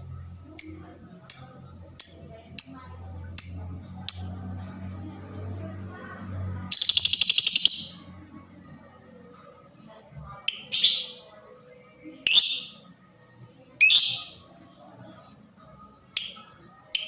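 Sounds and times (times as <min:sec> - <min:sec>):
shrill bird calls: 0:06.7 - 0:08.0.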